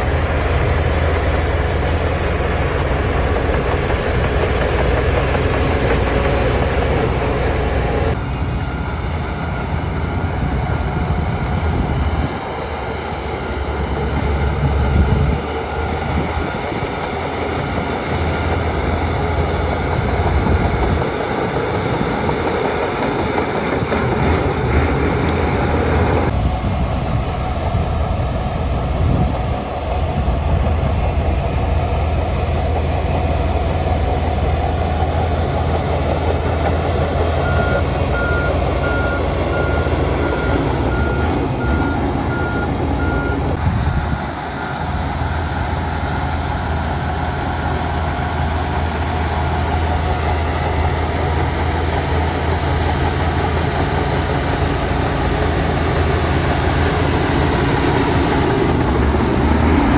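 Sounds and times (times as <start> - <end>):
heavy diesel machinery running: 0.0 - 59.9
reversing alarm beeping: 37.3 - 43.6.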